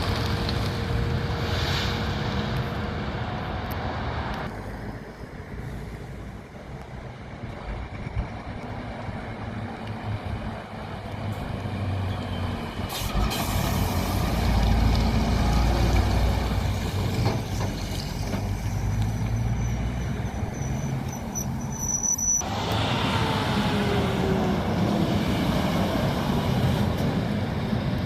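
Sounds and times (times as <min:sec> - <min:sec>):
truck diesel engine passing: 0:08.8 - 0:21.6, 0:22.4 - 0:28.0.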